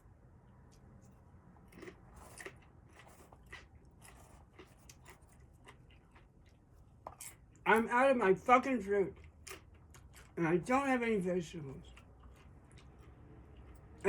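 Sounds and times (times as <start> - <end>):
person chewing and crunching: 0.7 - 7.6, 9.1 - 10.4, 11.7 - 14.0.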